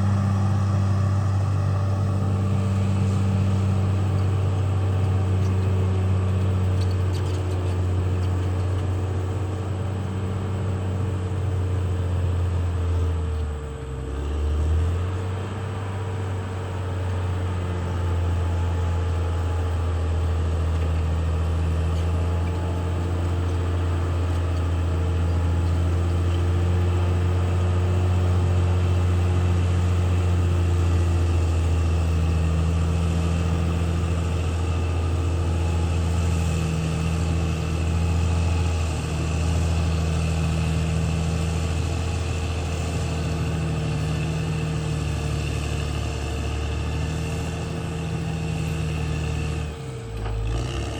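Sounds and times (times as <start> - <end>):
bulldozer diesel engine running: 0.0 - 50.9.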